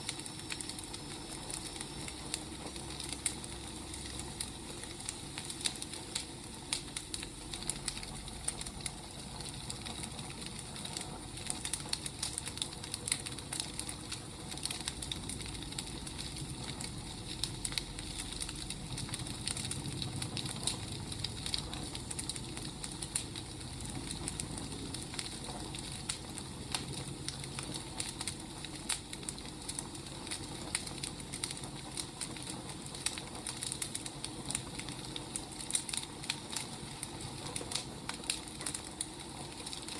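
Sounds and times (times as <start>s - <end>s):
low steady rumble: 0.0s - 39.9s
wood fire crackling: 0.0s - 39.9s.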